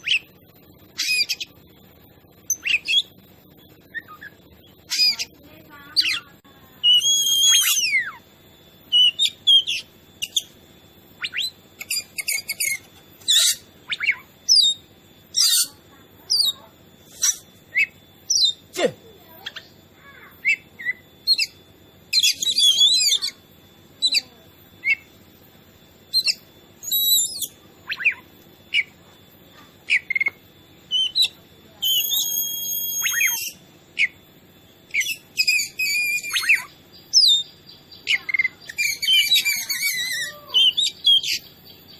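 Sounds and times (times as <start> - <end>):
bird singing whistled phrases: 0.0 - 0.4, 2.5 - 3.2, 6.0 - 8.2, 8.9 - 10.6, 11.2 - 18.6, 20.4 - 23.4, 24.0 - 25.1, 26.1 - 29.0, 29.9 - 34.2, 34.9 - 41.9.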